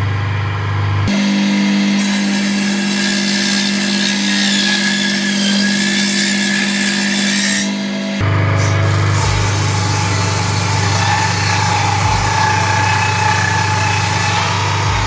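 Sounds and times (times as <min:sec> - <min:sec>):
tool cutting into wood: 0:02.0 - 0:07.7, 0:08.6 - 0:15.0
power tool motor hum: 0:08.2 - 0:15.0.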